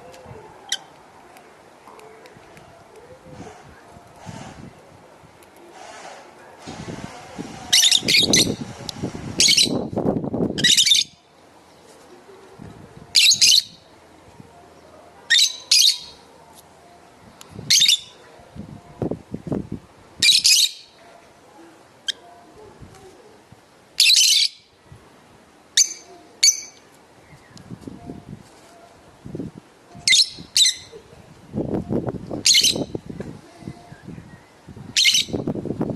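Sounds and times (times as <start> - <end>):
lovebirds shrill chirping: 7.7 - 8.7, 9.4 - 9.9, 10.6 - 11.3, 13.1 - 13.9, 15.3 - 16.3, 17.6 - 18.2, 20.2 - 21.0, 24.0 - 24.7, 25.8 - 27.6, 30.0 - 31.0, 32.4 - 33.0, 34.3 - 35.4
rustling: 26.8 - 29.1.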